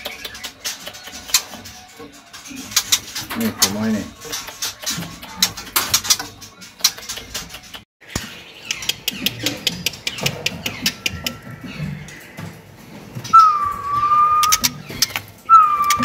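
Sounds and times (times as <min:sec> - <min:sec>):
birds clicking and tapping: 0:00.0 - 0:16.0
falling whistle: 0:13.3 - 0:14.6, 0:15.5 - 0:16.0.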